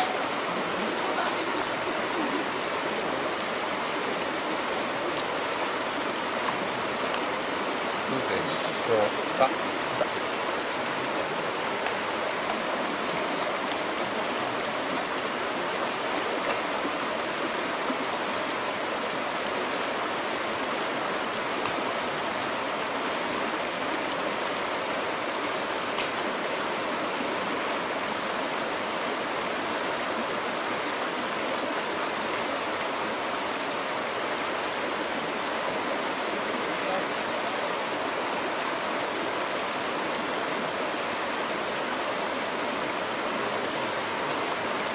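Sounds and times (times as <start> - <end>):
stream rushing: 0.0 - 44.9
faint ticks: 11.8 - 13.8.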